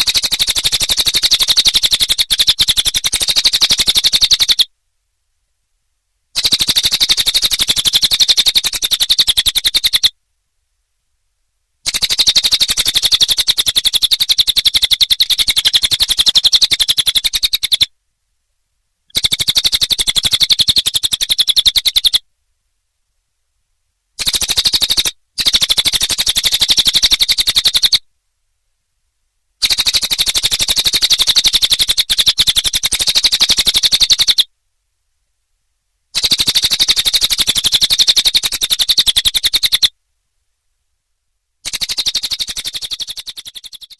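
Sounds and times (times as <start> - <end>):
bird chattering trill: 0.0 - 4.7, 6.4 - 10.1, 11.8 - 17.9, 19.1 - 22.2, 24.2 - 28.0, 29.6 - 34.5, 36.2 - 39.9, 41.6 - 43.9.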